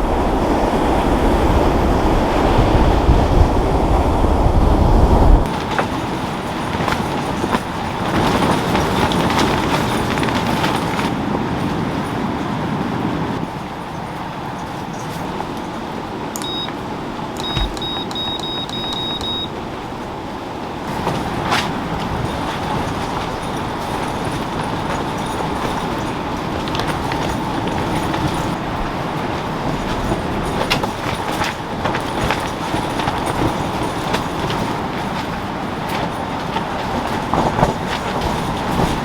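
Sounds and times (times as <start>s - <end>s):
high electronic beeps: 16.4s - 16.7s, 17.4s - 19.5s.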